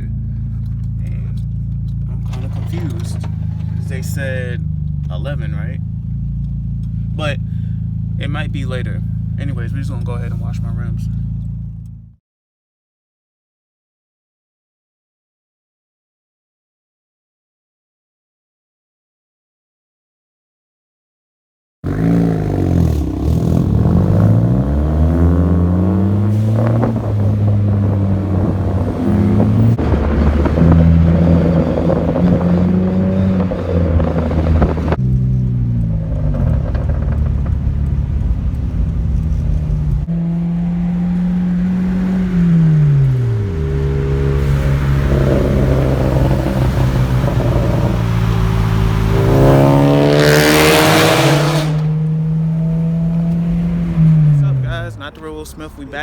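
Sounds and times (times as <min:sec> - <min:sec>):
car engines idling and revving: 0:00.0 - 0:12.2, 0:21.8 - 0:56.0.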